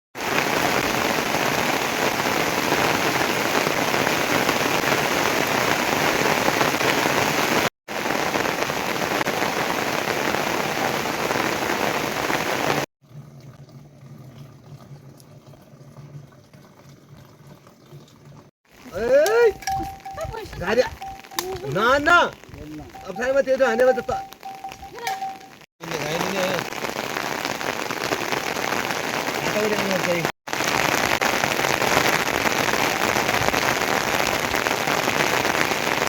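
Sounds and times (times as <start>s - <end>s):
heavy rain falling: 0.2s - 12.9s, 18.7s - 36.0s.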